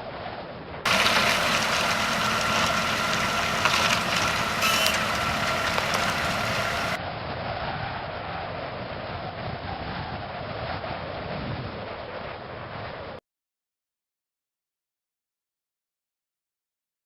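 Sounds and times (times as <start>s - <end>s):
engine running with whine: 0.9s - 7.0s.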